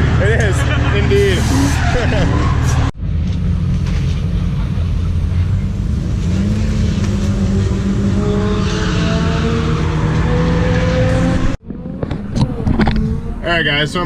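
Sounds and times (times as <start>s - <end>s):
car engine running hard: 0.0s - 14.0s.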